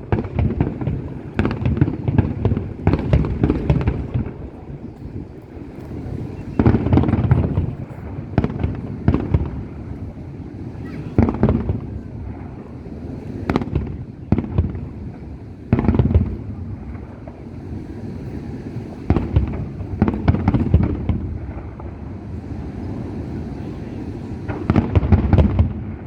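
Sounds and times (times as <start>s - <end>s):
firework bangs: 0.0s - 26.0s.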